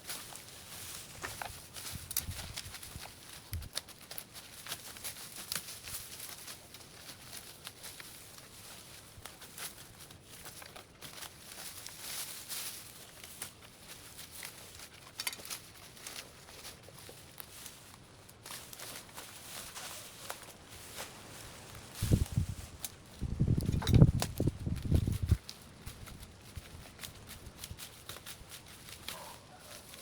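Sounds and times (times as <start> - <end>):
dry leaves rustling and crackling: 0.0 - 30.0.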